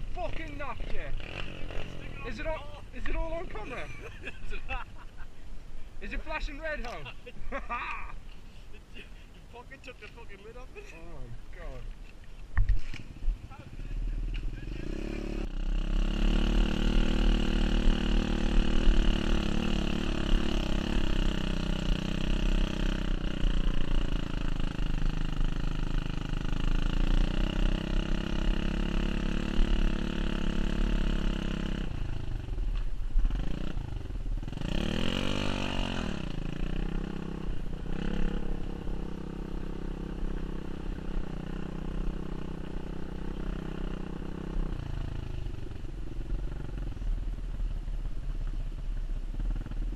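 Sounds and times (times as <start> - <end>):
pit bike engine running: 13.7 - 32.5.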